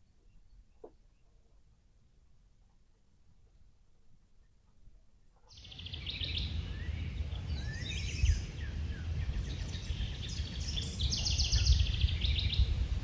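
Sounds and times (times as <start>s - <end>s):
small birds chirping: 4.3s - 12.8s
low rumble: 5.8s - 13.0s.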